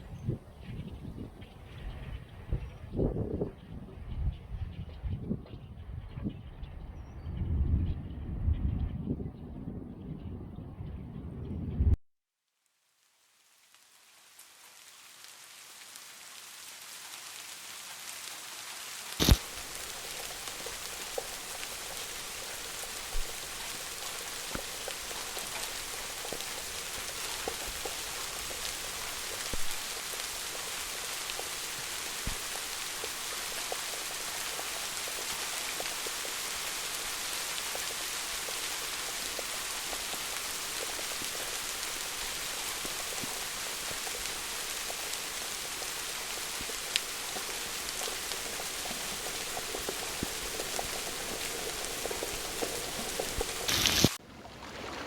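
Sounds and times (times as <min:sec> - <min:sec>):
steady rain hiss: 0:12.5 - 0:54.2
raindrops tapping: 0:19.2 - 0:54.2.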